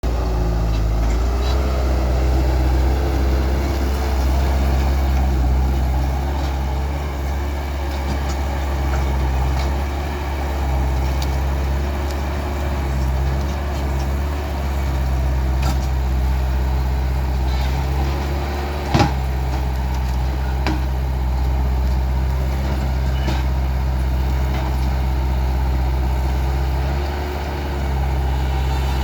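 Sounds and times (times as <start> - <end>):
skid steer engine running: 0.0 - 29.0
wavering whine: 27.8 - 29.0.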